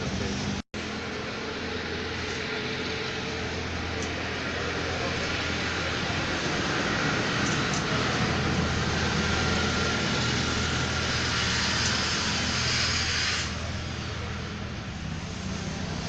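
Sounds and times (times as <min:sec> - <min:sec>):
scooter engine humming: 0:00.0 - 0:16.0
loud hiss: 0:09.7 - 0:14.2.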